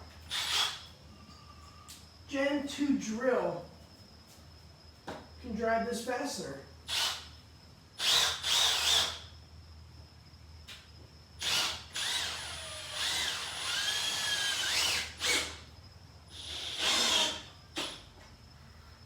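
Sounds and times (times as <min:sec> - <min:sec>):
cordless drill driving a screw: 0:00.3 - 0:00.9, 0:06.9 - 0:07.3, 0:08.0 - 0:09.2, 0:11.4 - 0:15.6, 0:16.3 - 0:18.0.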